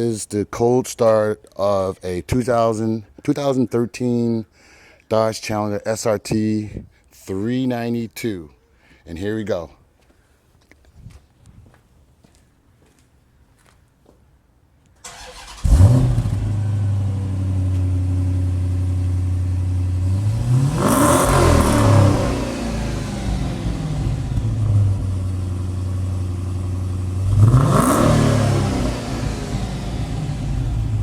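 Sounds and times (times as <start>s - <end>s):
engine cranking: 15.0s - 16.0s
car engine idling and revving: 15.1s - 31.0s.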